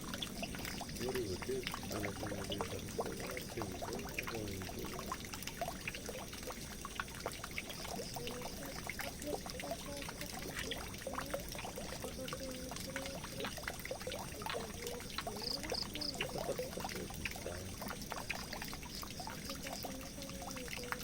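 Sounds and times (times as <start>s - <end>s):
water pouring down a drain: 0.0s - 21.0s.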